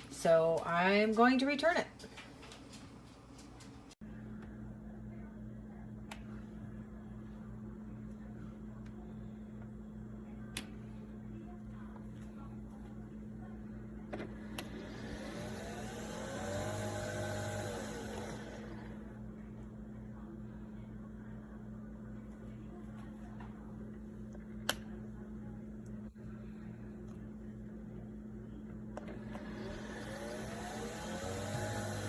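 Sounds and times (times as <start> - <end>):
coffee machine motor whirring: 13.9 - 19.2, 28.9 - 32.0.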